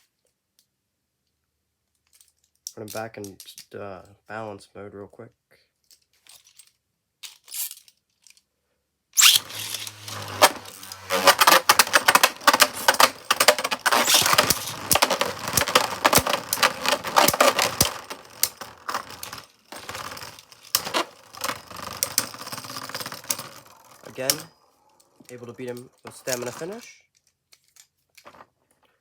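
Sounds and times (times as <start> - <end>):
spinning tops clashing: 9.2 - 24.5.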